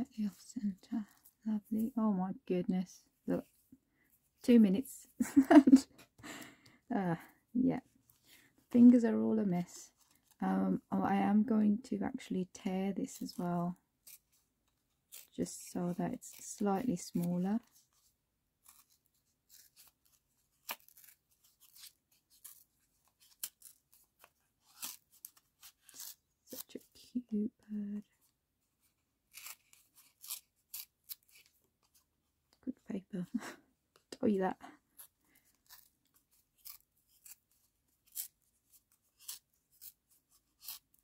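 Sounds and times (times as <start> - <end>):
paper tearing: 18.6 - 26.9, 29.2 - 32.0, 34.9 - 41.0.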